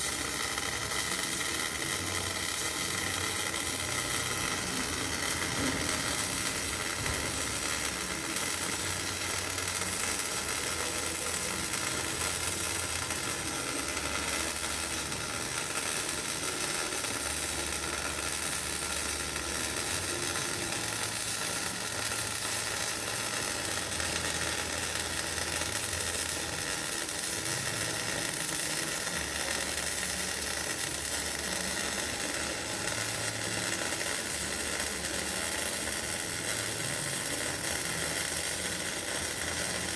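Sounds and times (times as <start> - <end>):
welding arc crackling and sizzling: 0.0 - 39.9.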